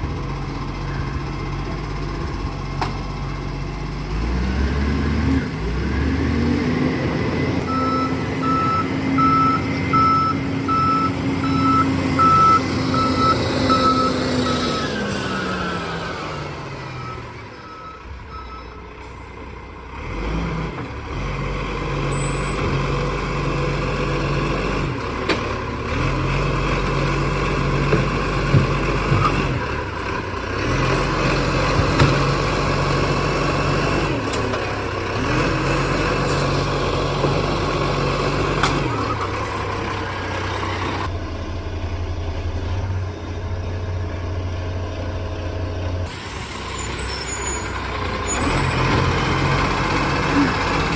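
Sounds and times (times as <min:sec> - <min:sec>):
garbage truck engine revving: 0:00.0 - 0:50.9.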